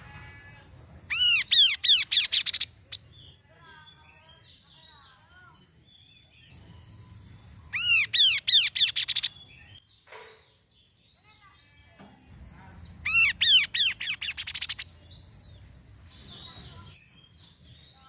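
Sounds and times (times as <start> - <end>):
bird whistling song: 1.1 - 4.0, 5.9 - 10.1, 12.7 - 18.0.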